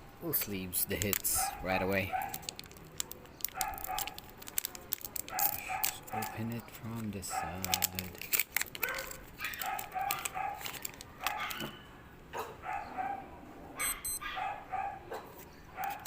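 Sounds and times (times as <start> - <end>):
sharp crinkling: 0.3 - 11.6, 15.3 - 16.0
dog barking: 1.4 - 2.5, 3.5 - 4.2, 5.3 - 6.5, 7.3 - 8.0, 8.8 - 16.0.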